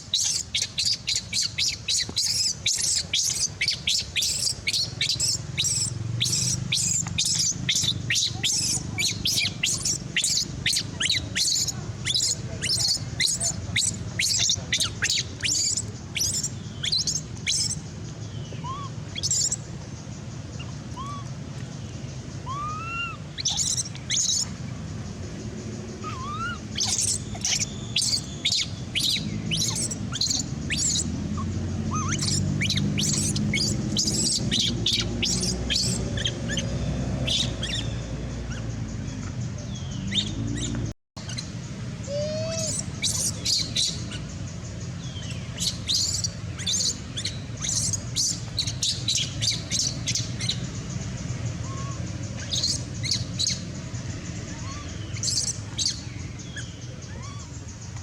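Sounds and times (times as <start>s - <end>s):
baby monkey squeaking: 0.0s - 17.8s, 18.6s - 19.6s, 20.5s - 21.3s, 22.4s - 24.5s, 26.0s - 37.9s, 40.1s - 44.4s, 45.2s - 50.6s, 51.6s - 53.7s, 54.6s - 57.6s.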